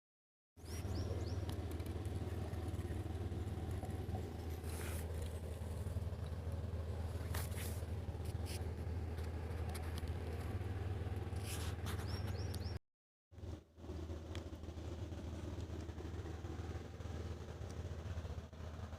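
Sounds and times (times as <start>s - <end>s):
tractor engine running: 0.6s - 12.8s.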